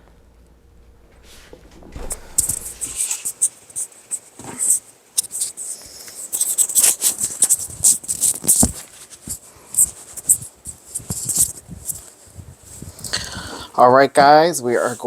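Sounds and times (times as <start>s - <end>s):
packaging crinkling: 5.3s - 12.2s.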